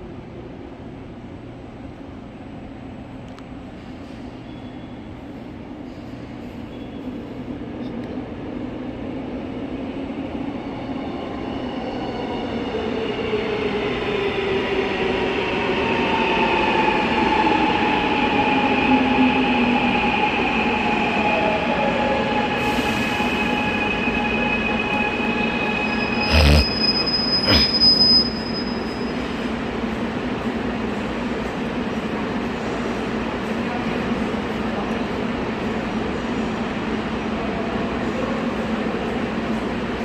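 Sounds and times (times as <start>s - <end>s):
high-pitched squeal: 25.5s - 28.7s.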